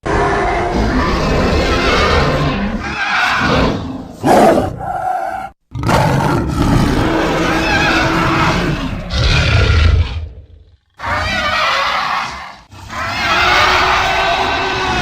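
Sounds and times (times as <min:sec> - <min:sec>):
creature growling roar: 0:00.0 - 0:15.0.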